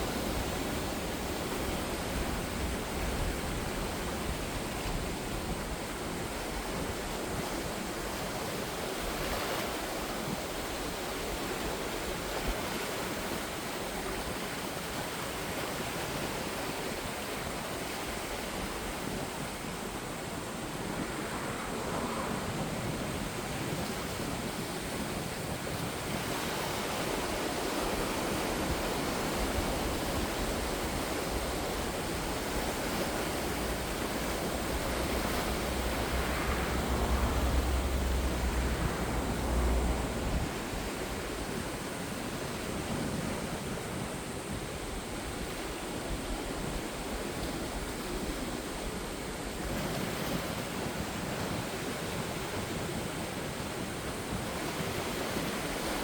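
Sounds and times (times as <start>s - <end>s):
waves washing onto shore: 0.0s - 56.0s
big wave breaking: 18.6s - 44.4s.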